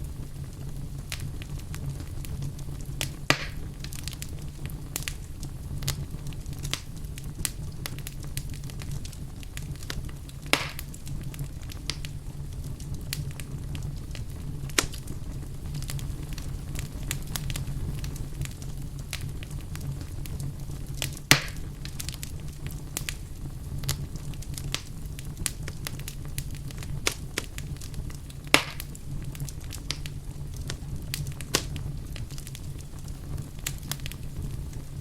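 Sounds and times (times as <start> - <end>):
low rumble of flames: 0.0 - 35.0
wood fire crackling: 0.0 - 35.0
sharp pops from fire: 0.1 - 35.0.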